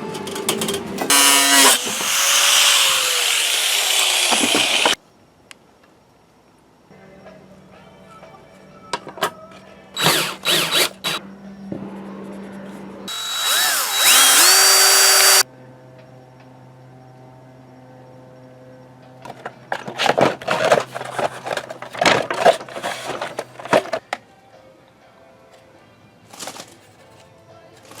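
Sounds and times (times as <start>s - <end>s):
small motor whine: 1.1s - 5.0s, 10.0s - 11.2s, 13.1s - 15.4s.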